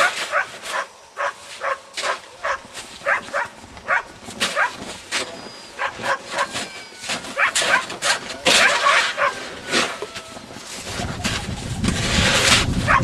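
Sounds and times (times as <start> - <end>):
dogs barking: 0.0 - 4.9, 5.6 - 10.0, 12.8 - 13.0.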